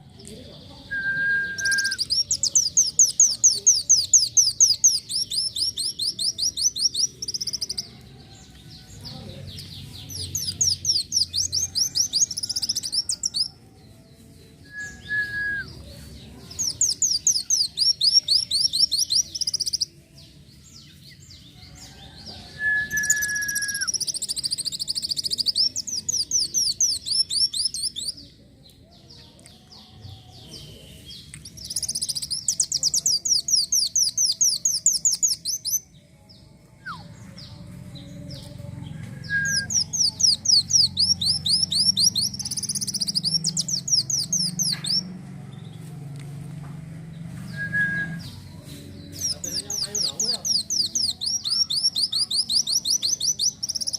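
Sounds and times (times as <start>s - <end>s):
sunbird trilled chirps: 39.5s - 45.1s.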